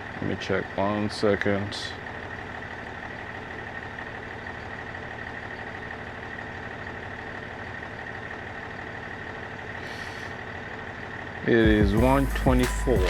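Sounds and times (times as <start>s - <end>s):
truck engine idling: 0.0s - 13.0s
high-pitched tone: 12.0s - 13.0s.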